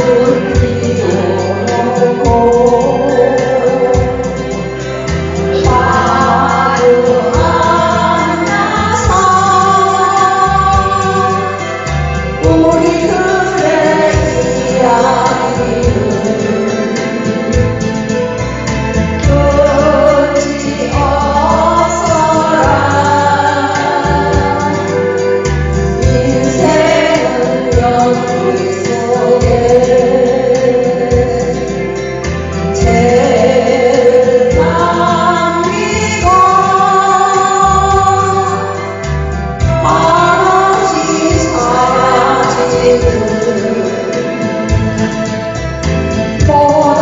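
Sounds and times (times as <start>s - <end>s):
elderly woman singing: 0.0s - 4.4s, 5.5s - 17.6s, 19.2s - 25.0s, 26.0s - 31.8s, 32.8s - 38.8s, 39.6s - 44.5s, 46.4s - 47.0s
backing track with bass notes: 0.0s - 47.0s.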